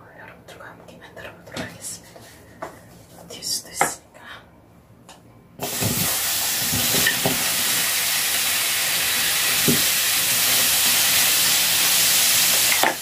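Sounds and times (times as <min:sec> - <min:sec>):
tomatoes sizzling on a pan: 0:05.6 - 0:13.0.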